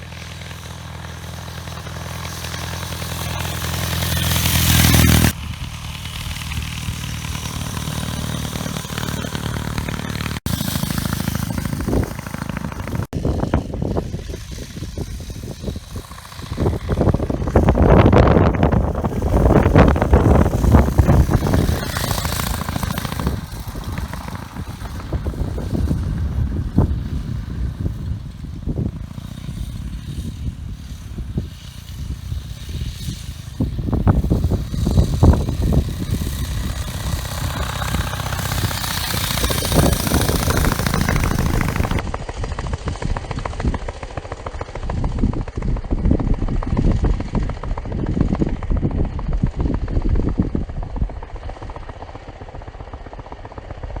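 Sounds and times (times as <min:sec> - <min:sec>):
motorcycle engine putt-putt: 0:00.0 - 0:50.0.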